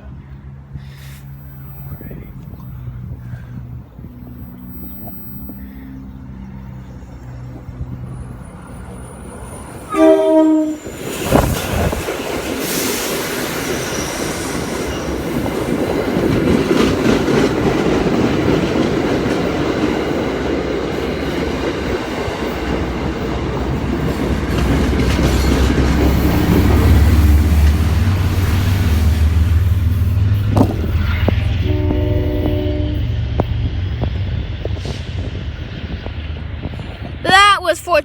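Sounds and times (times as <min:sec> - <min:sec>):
diesel locomotive engine rumble: 0:00.0 - 0:38.0
train wheel squeal: 0:00.8 - 0:15.7
train wheels clickety-clack: 0:09.6 - 0:29.5, 0:30.2 - 0:37.2.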